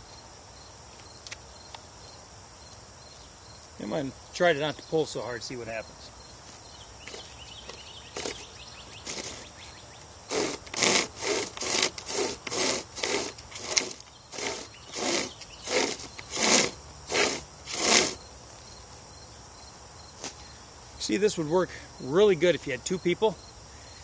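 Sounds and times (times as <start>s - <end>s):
hand chainsaw rasping through log: 7.1s - 7.4s, 8.1s - 9.6s, 10.2s - 18.2s.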